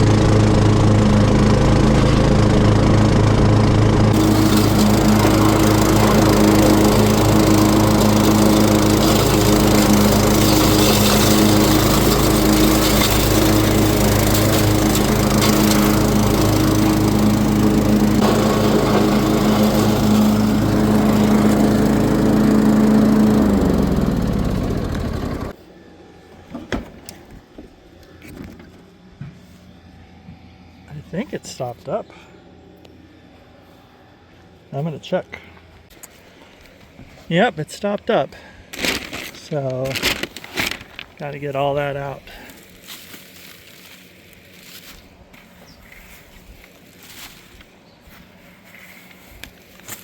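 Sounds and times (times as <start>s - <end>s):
riding lawn mower running: 0.0s - 25.6s, 38.4s - 50.0s.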